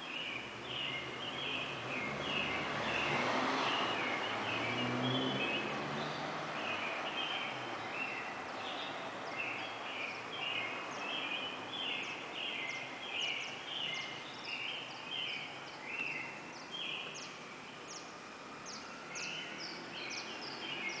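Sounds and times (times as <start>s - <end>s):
birds chirping: 0.0s - 21.0s
steady background noise: 5.4s - 21.0s.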